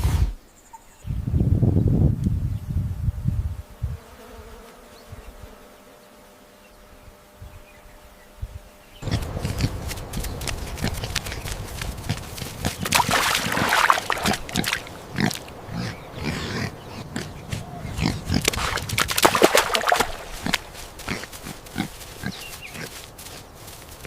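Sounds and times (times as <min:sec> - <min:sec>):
animal vocalising in noisy bursts: 0:09.0 - 0:23.0.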